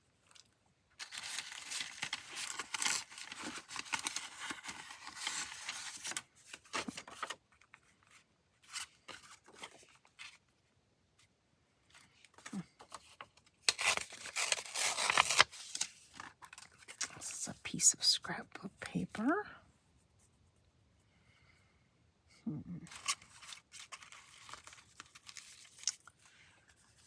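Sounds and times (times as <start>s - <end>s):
paper rustling: 1.0s - 10.4s, 11.9s - 17.4s, 22.9s - 27.0s.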